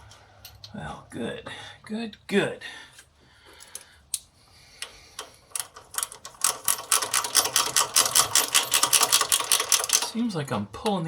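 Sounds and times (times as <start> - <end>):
ratchet wrench clicking: 4.8 - 10.1.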